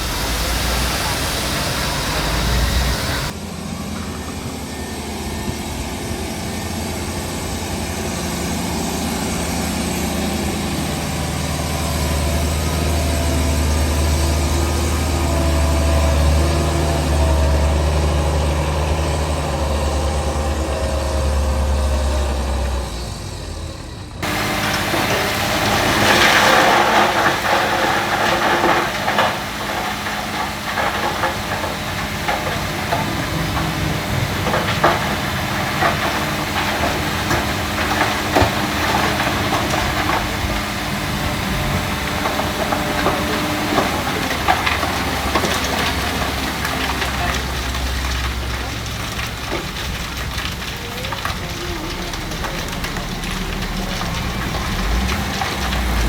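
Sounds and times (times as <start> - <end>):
diesel engine droning: 0.0 - 56.0
harsh rattling knocks: 24.2 - 56.0.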